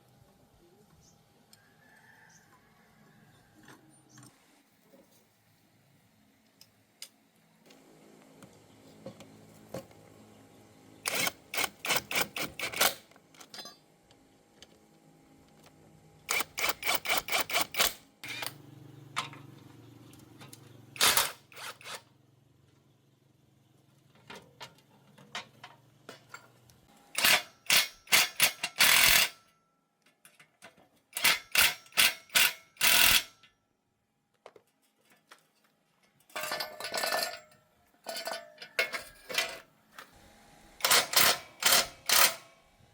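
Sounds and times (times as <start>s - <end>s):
rapid clicks of hand tools on metal: 11.0s - 13.7s, 16.3s - 18.6s, 20.5s - 22.0s, 27.2s - 29.5s, 31.1s - 33.4s, 40.8s - 42.6s.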